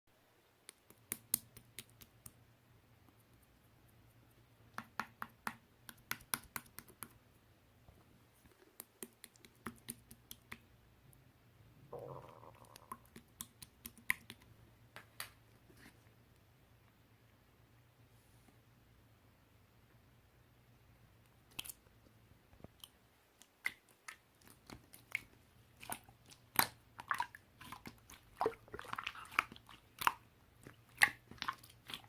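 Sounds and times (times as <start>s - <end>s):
sharp clicks and taps: 0.6s - 2.4s, 4.7s - 7.2s, 8.5s - 10.7s
faint low hum: 6.8s - 32.0s.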